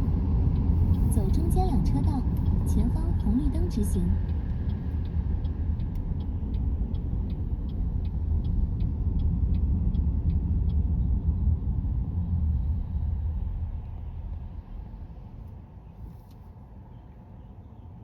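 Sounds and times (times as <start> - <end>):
turn signal ticking: 0.0 - 14.5
road and tyre rumble in car: 0.0 - 18.0.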